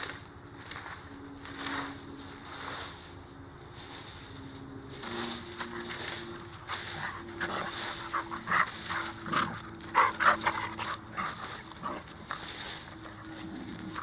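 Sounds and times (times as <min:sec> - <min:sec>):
dog panting: 0:06.7 - 0:14.0.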